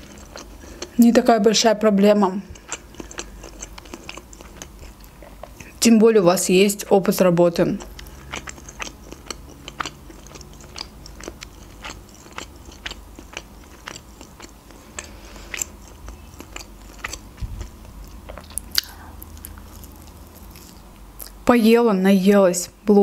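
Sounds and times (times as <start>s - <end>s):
person chewing with crunches: 0.0s - 1.1s, 2.4s - 5.8s, 7.5s - 21.4s.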